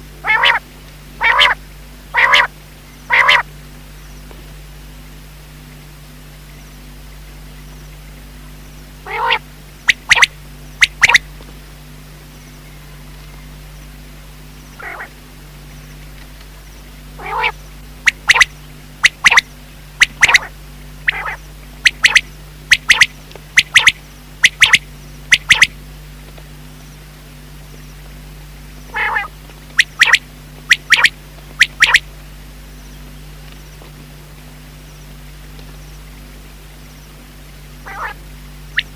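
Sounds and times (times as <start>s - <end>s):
faint steady hum: 0.0s - 38.9s
quail calling: 0.2s - 0.6s, 1.2s - 2.5s, 3.1s - 3.5s, 9.0s - 11.2s, 14.8s - 15.1s, 17.2s - 25.7s, 28.9s - 32.0s, 37.8s - 38.9s.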